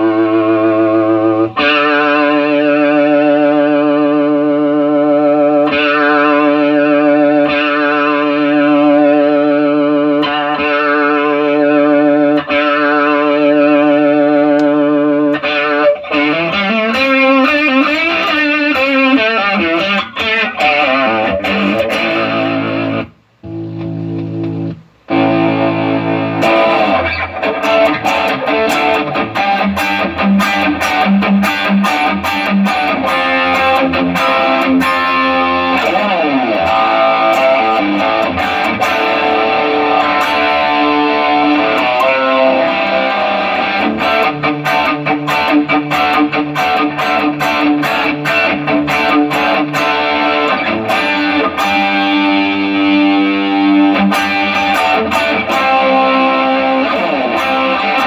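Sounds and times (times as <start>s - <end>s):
distorted electric guitar: 0.0s - 58.0s.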